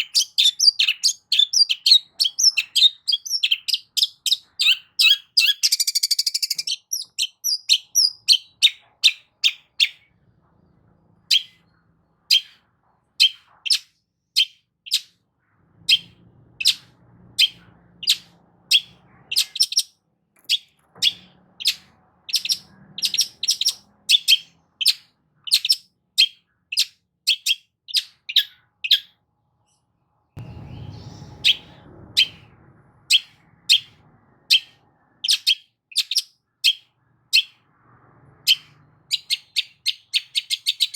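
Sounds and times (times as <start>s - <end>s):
brief low rumble: 30.4s - 35.1s
bird singing harsh high notes: 30.4s - 37.6s.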